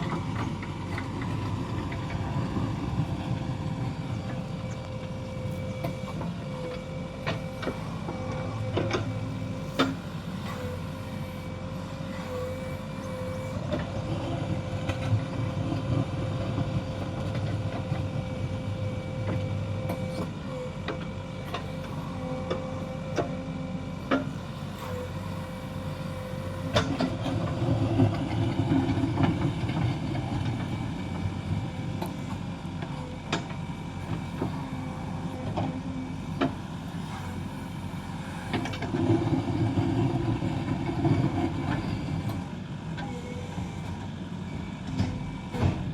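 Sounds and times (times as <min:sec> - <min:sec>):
steady whine: 0:00.0 - 0:09.6
backhoe diesel engine running: 0:00.0 - 0:45.9.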